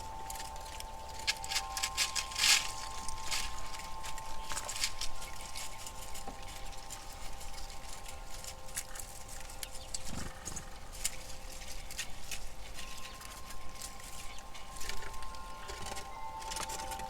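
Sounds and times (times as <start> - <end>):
squirrels cracking nut shells: 0.0 - 10.1
faint steady hum: 0.0 - 17.0.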